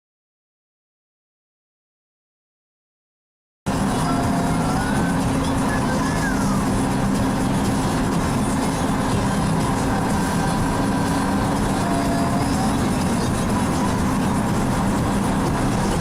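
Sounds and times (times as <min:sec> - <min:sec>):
pickup truck engine running: 0:03.7 - 0:16.0
road and wind noise: 0:03.7 - 0:16.0.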